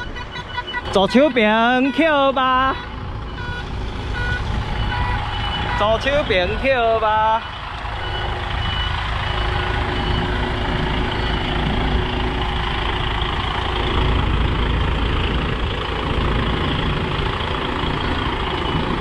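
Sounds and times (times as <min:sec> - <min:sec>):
truck diesel engine running: 0:00.0 - 0:19.0
faint reversing beep: 0:07.4 - 0:11.6.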